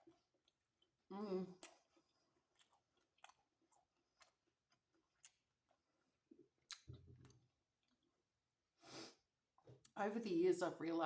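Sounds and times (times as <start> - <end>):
person chewing food: 0.0 - 8.3.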